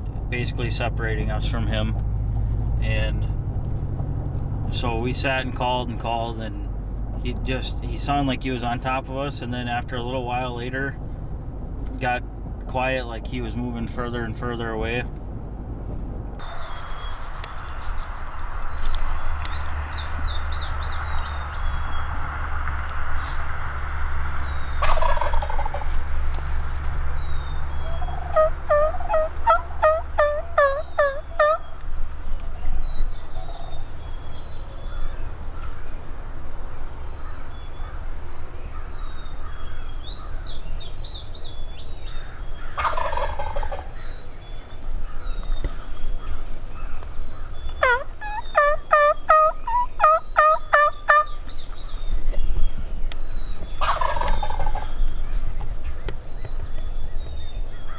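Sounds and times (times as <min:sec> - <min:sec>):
bird chirping: 0:16.4 - 0:57.9
turkey gobbling: 0:19.4 - 0:32.6, 0:42.0 - 0:44.2, 0:45.8 - 0:51.5, 0:53.8 - 0:55.4.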